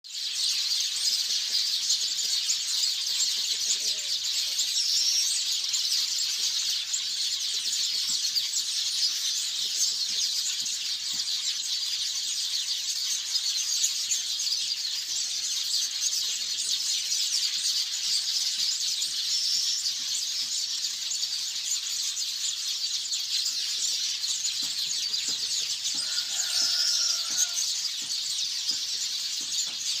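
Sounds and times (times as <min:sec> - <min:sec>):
birds chattering and twittering: 0:00.0 - 0:30.0
lower bird call: 0:26.0 - 0:27.7.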